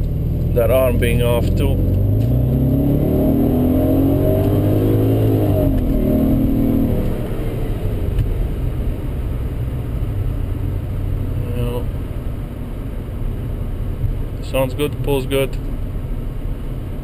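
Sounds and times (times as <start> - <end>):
car engine accelerating: 0.0 - 12.3.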